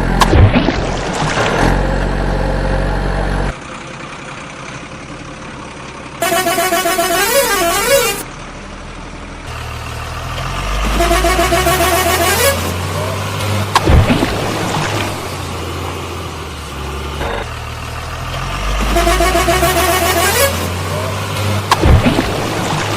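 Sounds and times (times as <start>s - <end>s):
low engine rumble: 0.9s - 22.9s
musical horn playing tune: 6.2s - 8.2s, 10.8s - 13.0s, 18.8s - 21.1s.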